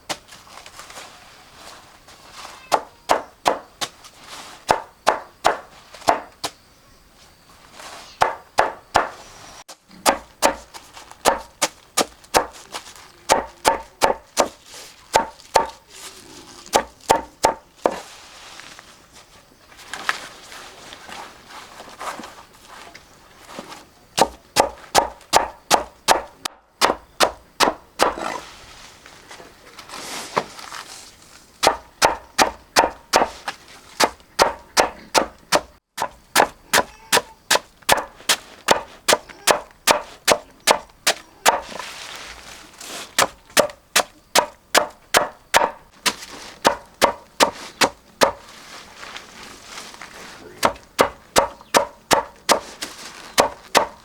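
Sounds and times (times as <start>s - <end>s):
knife chopping on wooden block: 2.7s - 3.7s, 4.7s - 6.3s, 8.2s - 9.2s, 10.0s - 12.6s, 13.3s - 15.8s, 16.7s - 17.7s, 24.2s - 28.2s, 31.6s - 33.4s, 34.0s - 41.7s, 43.2s - 48.4s, 50.6s - 52.7s, 53.4s - 54.0s.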